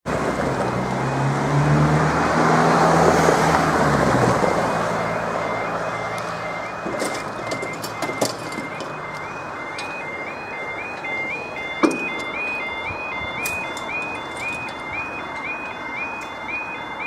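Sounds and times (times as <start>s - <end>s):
vehicle passing: 0.1s - 7.4s
two-tone crossing alarm: 0.2s - 17.0s.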